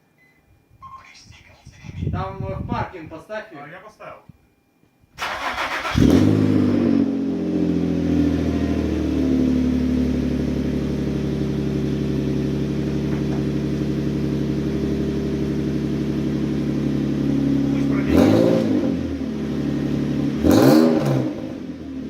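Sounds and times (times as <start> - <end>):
car engine idling: 5.2 - 22.0.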